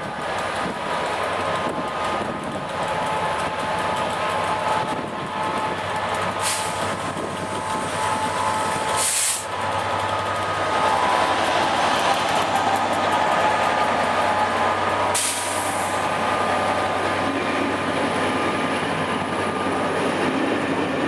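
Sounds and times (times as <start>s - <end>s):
diesel train engine drone: 0.0s - 21.0s
air hissing bursts: 6.4s - 9.6s, 15.1s - 16.0s.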